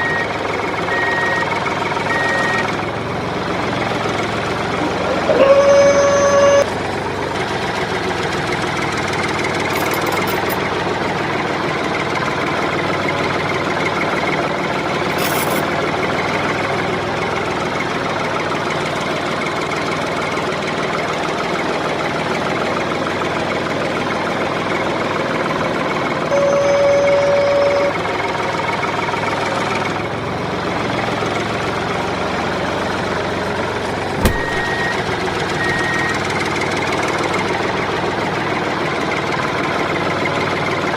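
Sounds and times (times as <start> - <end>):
horn toot: 4.8 - 6.6.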